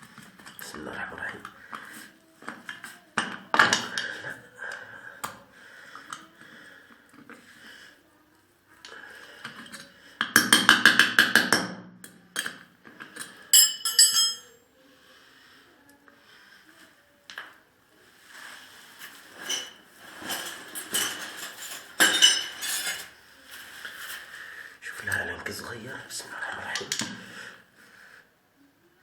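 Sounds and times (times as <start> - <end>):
ringing metal clink: 13.6 - 14.6.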